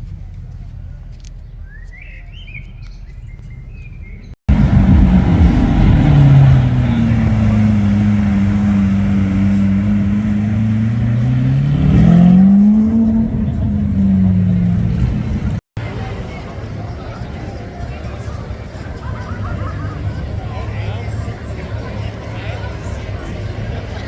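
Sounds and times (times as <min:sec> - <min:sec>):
loud car engine running: 0:04.5 - 0:15.6.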